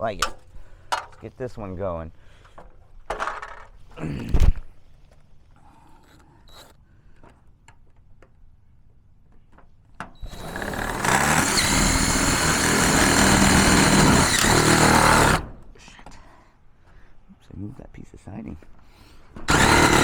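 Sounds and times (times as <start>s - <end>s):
cordless drill spinning: 10.2s - 15.4s, 19.5s - 20.0s.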